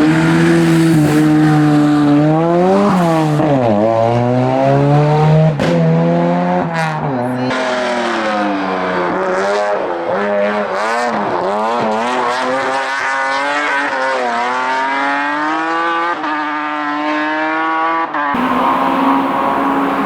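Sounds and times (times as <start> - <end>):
race car engine revving: 0.0 - 12.4, 18.4 - 20.0
gear change: 18.4 - 20.0.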